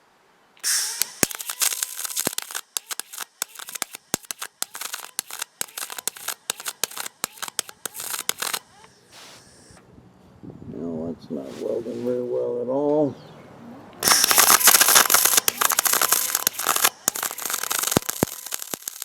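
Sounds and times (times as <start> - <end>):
welder arc crackling and popping: 0.6 - 9.8, 14.0 - 19.0.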